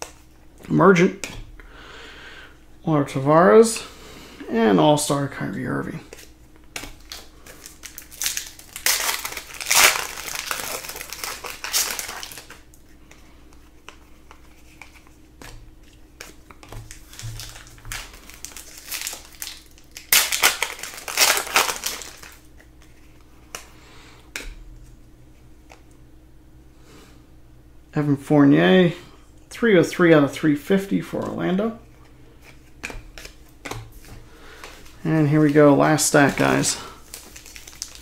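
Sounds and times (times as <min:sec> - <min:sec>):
faint steady hum: 0:00.0 - 0:38.0
cards rustling: 0:06.0 - 0:23.8, 0:30.8 - 0:38.0
plastic wrappers crinkling: 0:06.1 - 0:12.8, 0:13.8 - 0:23.2, 0:32.3 - 0:38.0.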